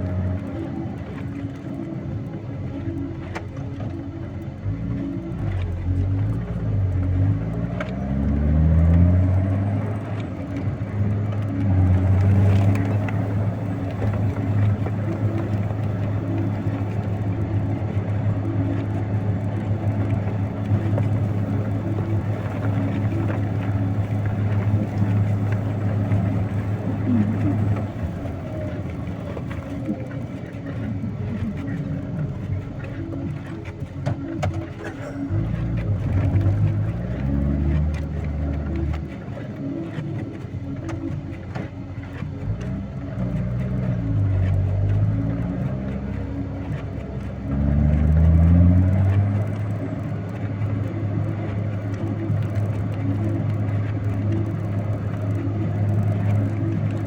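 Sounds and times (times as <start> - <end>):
heavy vehicle engine revving: 4.7 - 33.6, 42.3 - 57.0.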